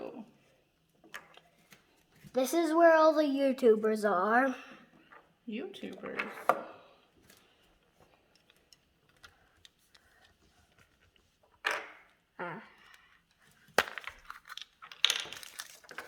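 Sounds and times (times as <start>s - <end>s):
packaging rustling: 13.7s - 16.0s
plastic toy pieces clicking: 13.8s - 16.0s.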